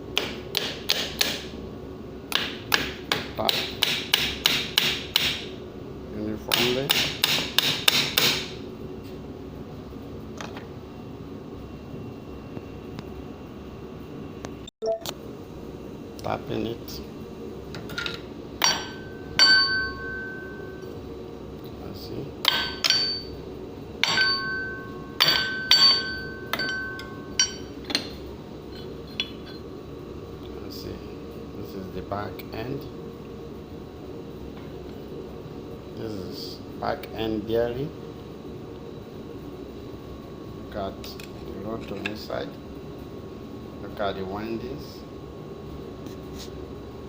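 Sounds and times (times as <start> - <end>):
mallet tapping metal cover: 24.0 - 28.0.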